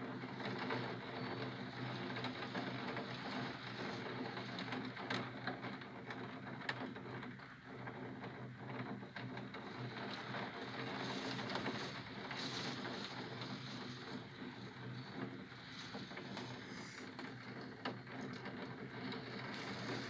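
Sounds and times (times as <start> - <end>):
raindrops ticking on window: 0.4 - 20.0
rain hiss: 9.6 - 17.4, 19.2 - 20.0
low city hum: 9.6 - 20.0.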